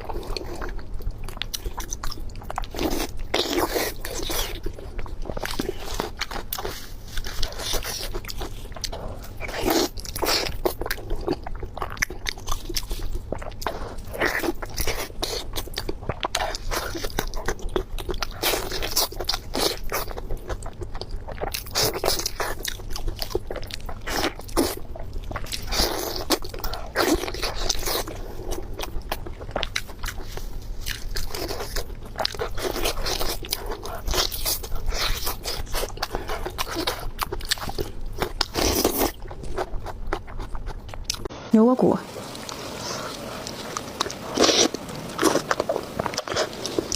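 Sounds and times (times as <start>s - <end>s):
chewing crunchy food: 0.0s - 41.3s, 42.1s - 46.9s.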